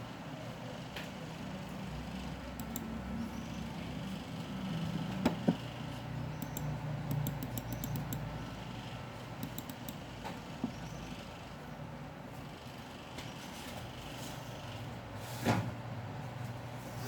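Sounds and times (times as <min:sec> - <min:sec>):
steady low hum: 0:00.0 - 0:17.0
mouse and keyboard clicks: 0:02.6 - 0:02.9, 0:06.4 - 0:08.3, 0:09.4 - 0:10.0.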